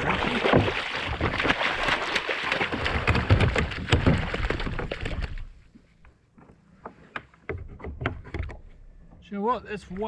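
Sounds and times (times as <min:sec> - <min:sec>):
knocks and clicks on a kayak: 0:02.9 - 0:05.4, 0:06.3 - 0:09.2.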